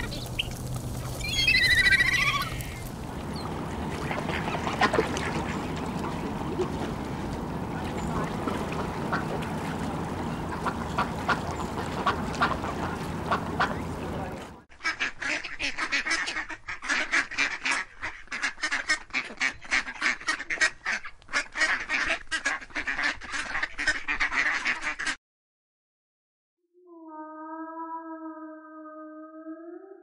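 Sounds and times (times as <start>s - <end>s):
water rushing: 0.0s - 14.6s
ducks quacking rapidly: 0.0s - 25.2s
faint duck calls: 7.5s - 25.2s.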